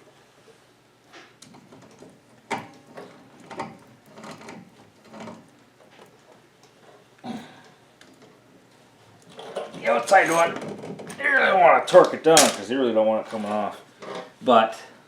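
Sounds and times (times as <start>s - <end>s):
metal tools clicking and clanking: 12.4s - 12.7s.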